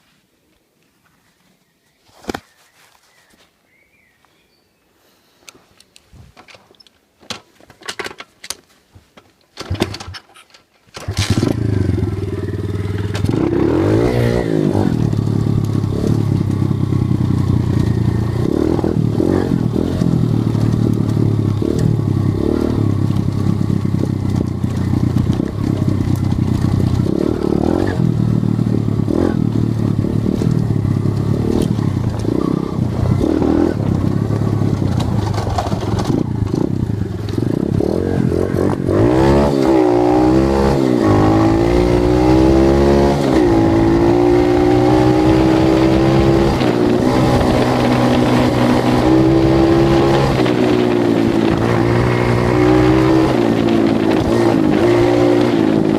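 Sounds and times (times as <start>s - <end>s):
dirt bike engine revving: 11.0s - 55.9s
engine clicks and knocks: 33.8s - 37.9s.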